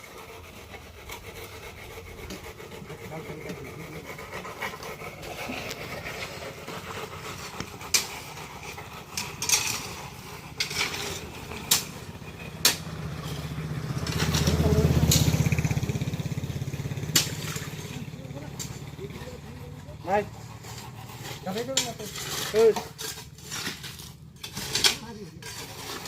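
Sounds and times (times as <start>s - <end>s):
vehicle engine running: 9.0s - 21.8s.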